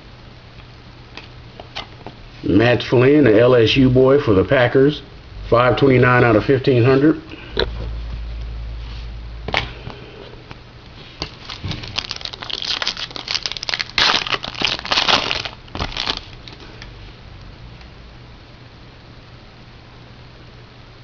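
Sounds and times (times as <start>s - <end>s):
wrapper crinkling and tearing: 11.2s - 16.8s.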